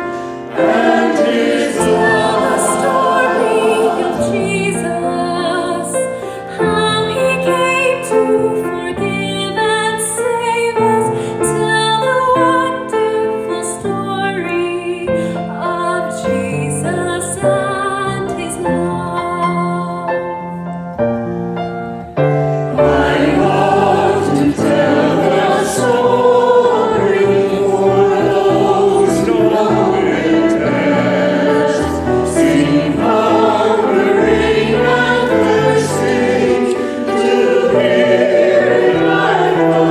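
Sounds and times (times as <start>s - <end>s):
choir singing sacred music: 0.0s - 6.2s, 22.5s - 39.9s.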